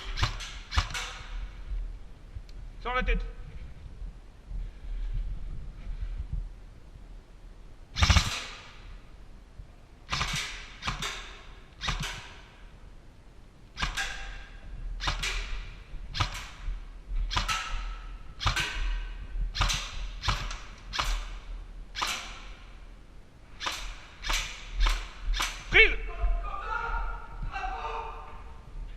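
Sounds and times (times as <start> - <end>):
airsoft gun shots with echo: 0.0 - 1.4, 8.0 - 8.9, 10.1 - 12.5, 13.8 - 16.6, 17.3 - 19.0, 19.6 - 22.7, 23.6 - 25.8.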